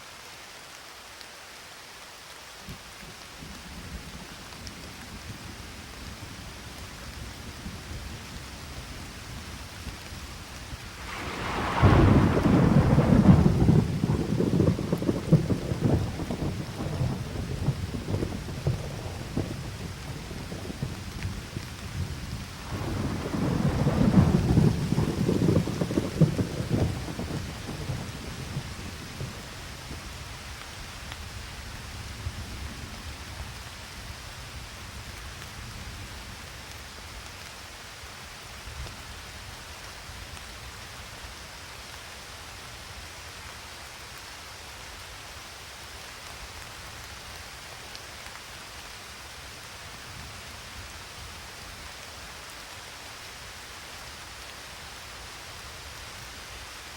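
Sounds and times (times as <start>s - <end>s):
rain falling: 0.0s - 56.9s
thunder rumbling: 10.5s - 30.3s.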